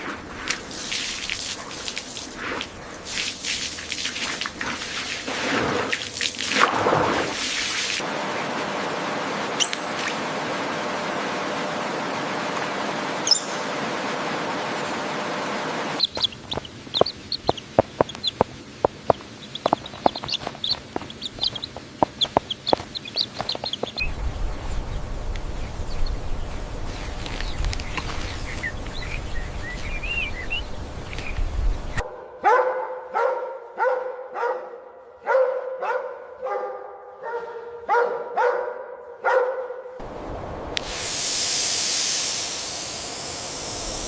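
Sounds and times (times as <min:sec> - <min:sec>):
chickens clucking: 0:16.0 - 0:24.1
low rumble: 0:23.9 - 0:32.0
dog barking: 0:32.0 - 0:40.0.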